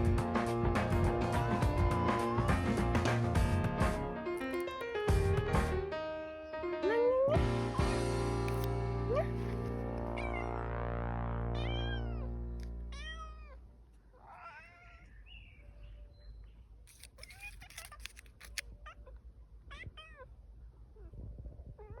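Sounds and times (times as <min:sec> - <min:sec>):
background music: 0:00.0 - 0:11.6
cat mewing: 0:01.2 - 0:02.9, 0:10.1 - 0:10.6, 0:11.6 - 0:12.3, 0:12.9 - 0:13.6, 0:14.2 - 0:15.2, 0:17.0 - 0:20.3.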